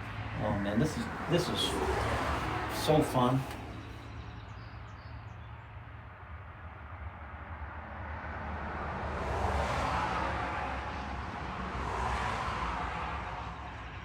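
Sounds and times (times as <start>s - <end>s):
vehicle passing by: 0.0s - 4.4s, 7.8s - 14.0s.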